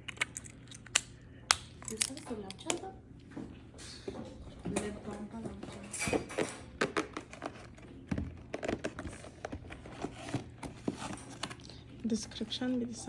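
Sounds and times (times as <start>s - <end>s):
plastic and cardboard crinkling: 6.3s - 12.8s.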